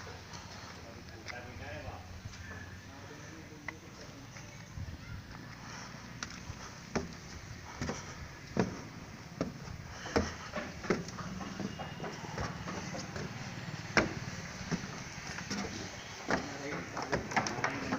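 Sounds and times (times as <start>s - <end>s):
sharp knocks: 7.8s - 17.9s.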